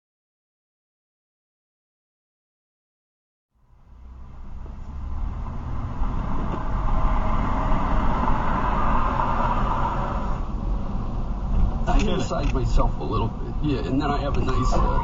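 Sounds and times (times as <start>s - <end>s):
vehicle engine rumble: 3.6s - 15.0s
road hiss: 5.9s - 13.6s.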